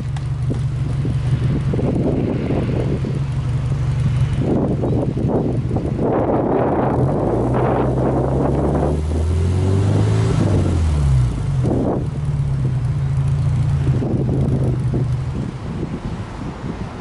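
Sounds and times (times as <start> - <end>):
car engine revving and idling: 0.0 - 17.0.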